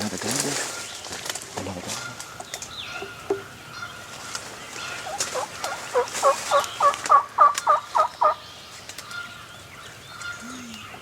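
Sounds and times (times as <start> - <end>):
turkey gobbling: 4.8 - 8.4.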